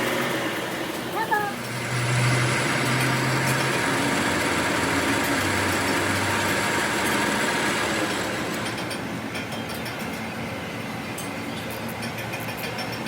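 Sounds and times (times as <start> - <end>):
machine running: 0.0 - 10.1.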